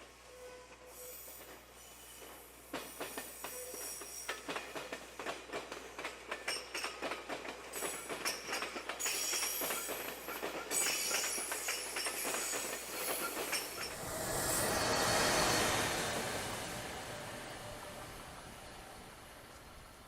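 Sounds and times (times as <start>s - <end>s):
train wheels clicking over rails: 1.4s - 18.2s
train rushing past: 6.9s - 20.0s.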